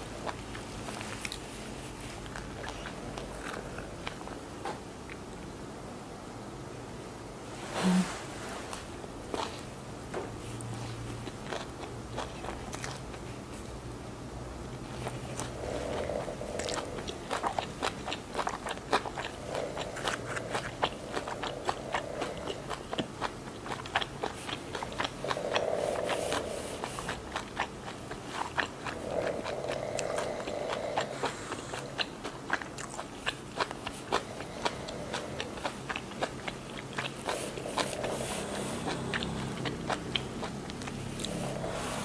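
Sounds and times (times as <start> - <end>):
chewing with wet mouth clicks: 0.0 - 1.5, 2.2 - 4.4, 10.5 - 13.3, 14.9 - 41.8
lettuce crunching: 14.9 - 41.7.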